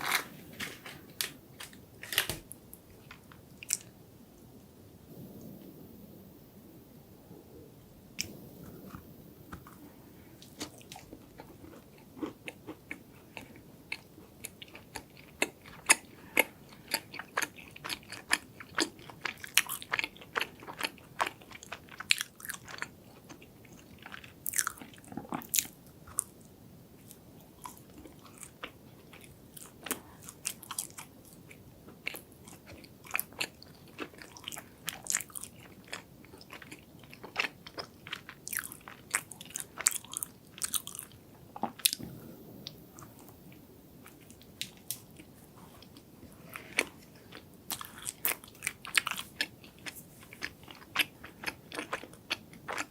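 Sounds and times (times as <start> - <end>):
wet chewing: 27.6 - 52.9.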